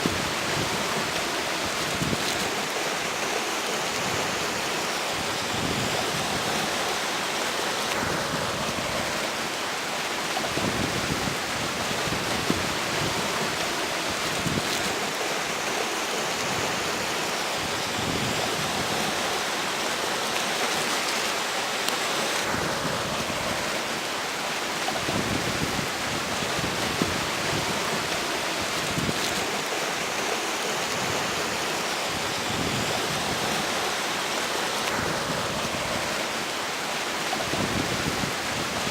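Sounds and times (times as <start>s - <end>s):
river flowing: 0.0s - 38.9s
strong wind blowing: 10.4s - 15.1s, 24.8s - 29.7s, 30.8s - 34.0s, 37.4s - 38.9s.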